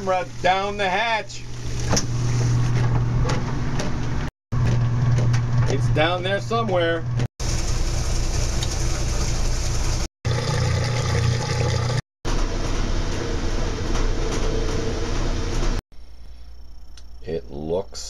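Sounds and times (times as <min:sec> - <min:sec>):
washing machine motor hum: 0:00.0 - 0:15.8
water churning in washing machine: 0:07.4 - 0:12.0.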